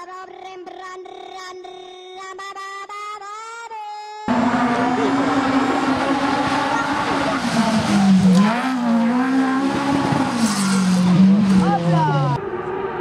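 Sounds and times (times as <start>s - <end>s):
rally car engine revving: 4.3s - 13.0s.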